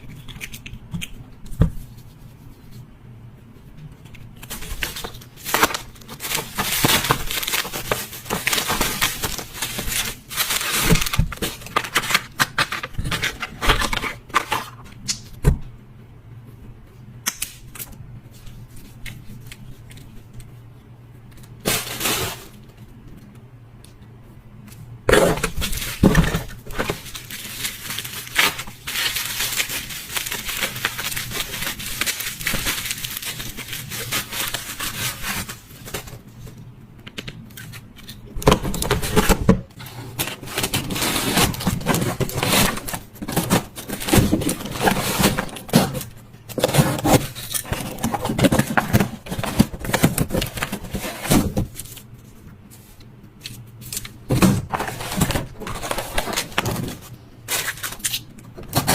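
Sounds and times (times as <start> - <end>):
packaging rustling and crinkling: 4.4 - 15.0, 21.4 - 23.2, 25.1 - 58.9.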